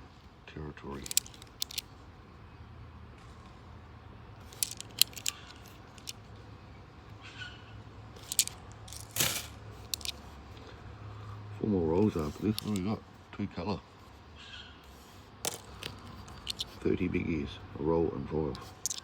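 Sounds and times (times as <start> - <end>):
coins clicking and clinking: 1.0 - 1.8, 4.4 - 6.2, 8.2 - 10.2, 12.2 - 12.9, 15.4 - 16.8, 18.7 - 19.0.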